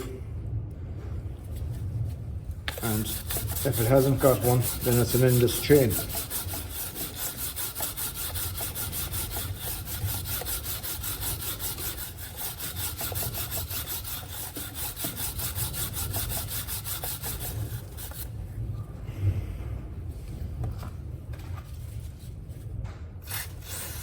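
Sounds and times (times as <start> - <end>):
brush scrubbing chain: 2.7 - 18.3.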